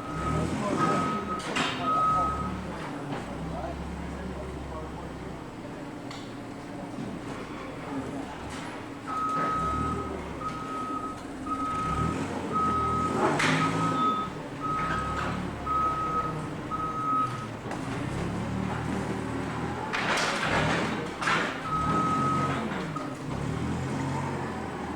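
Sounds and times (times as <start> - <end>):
backup alarm beeping: 0.0 - 2.7, 9.1 - 17.6.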